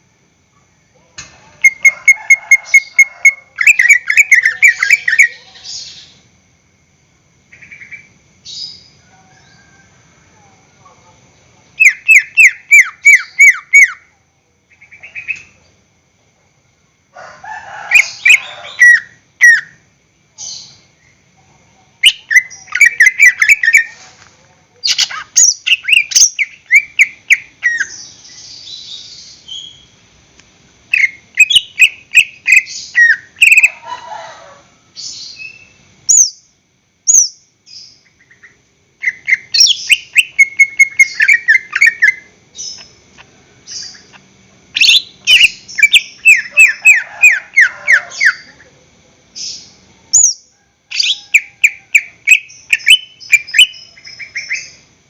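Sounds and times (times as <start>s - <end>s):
bird singing whistled notes: 31.0s - 33.7s, 49.5s - 54.8s.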